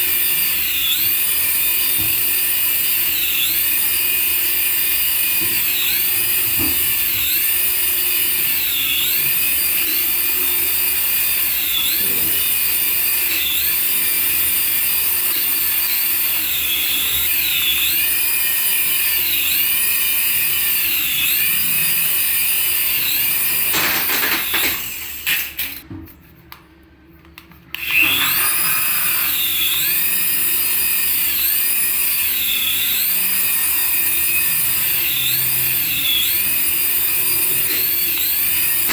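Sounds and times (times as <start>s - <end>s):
toy electric motor whine: 0.0s - 25.8s, 27.7s - 38.9s.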